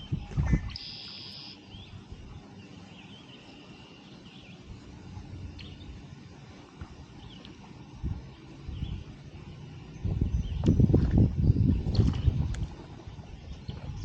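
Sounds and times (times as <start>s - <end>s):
low background rumble: 0.0s - 14.0s
bird buzzy high trill: 0.2s - 1.7s
bird chirps: 0.5s - 2.0s.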